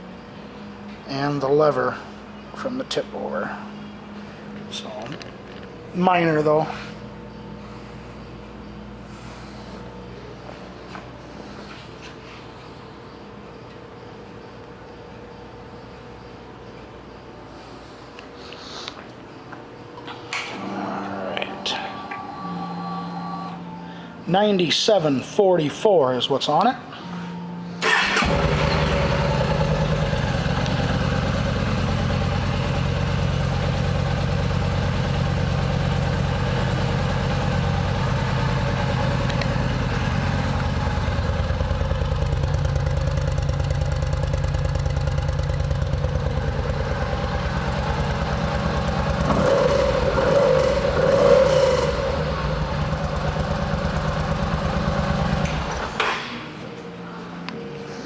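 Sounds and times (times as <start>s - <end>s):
motorcycle engine idling: 27.8s - 56.0s.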